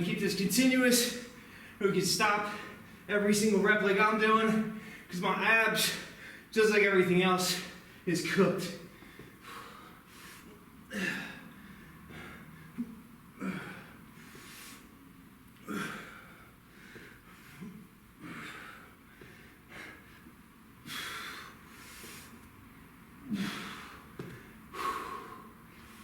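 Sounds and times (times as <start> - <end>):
man breathing hard: 1.2 - 1.8, 2.4 - 3.1, 4.7 - 5.1, 5.8 - 6.5, 8.8 - 15.0, 15.6 - 22.5, 23.2 - 26.0.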